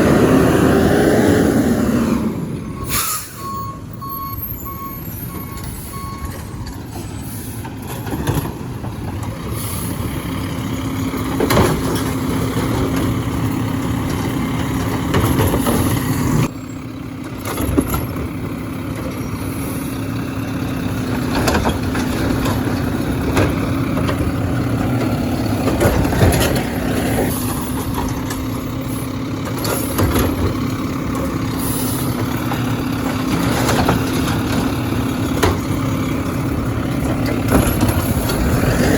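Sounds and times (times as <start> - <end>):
garbage truck mechanical hum: 0.0 - 38.9
reversing beeper: 2.4 - 7.4
sharp clanks and knocks: 7.6 - 9.4, 11.0 - 16.5, 17.2 - 19.3, 21.0 - 31.5, 32.1 - 38.9.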